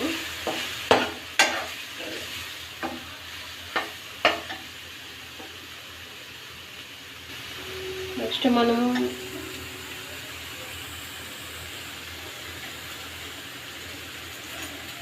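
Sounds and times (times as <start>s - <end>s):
paste sizzling in a pan: 0.0s - 15.0s
spatula scraping a pan: 0.3s - 3.0s.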